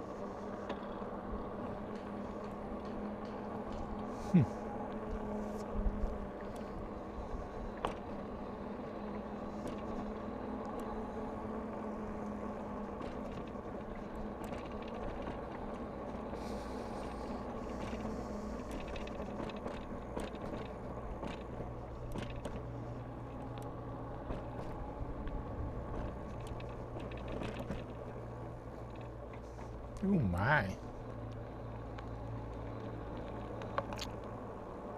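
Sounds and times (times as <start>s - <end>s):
bicycle running hum: 0.0s - 34.9s
road and wind noise: 0.0s - 34.9s
small clicks and rattles: 12.2s - 16.4s, 17.0s - 30.0s.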